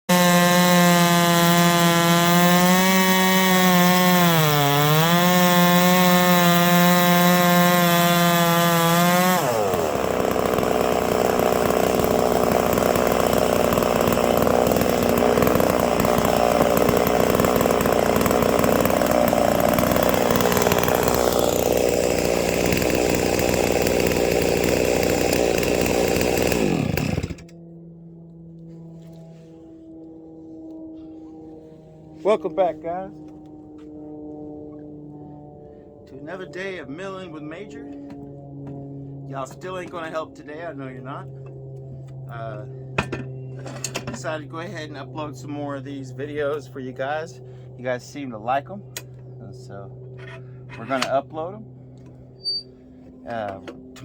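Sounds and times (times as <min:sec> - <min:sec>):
chainsaw running at high revs: 0:00.1 - 0:27.5, 0:36.2 - 0:43.3.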